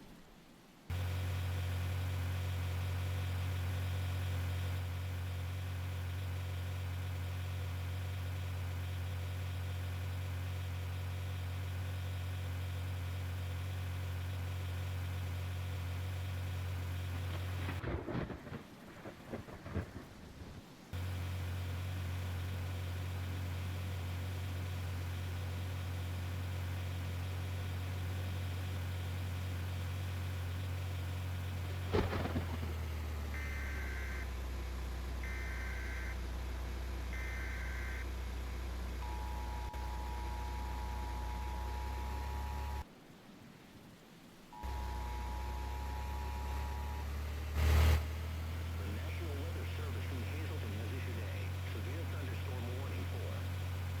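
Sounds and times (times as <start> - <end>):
steady low hum: 15.2 - 54.0
thunder rumbling: 17.6 - 20.9, 31.8 - 33.9
thunder cracks: 17.8 - 20.6, 31.8 - 33.0
steady two-tone attention tone: 39.0 - 42.8.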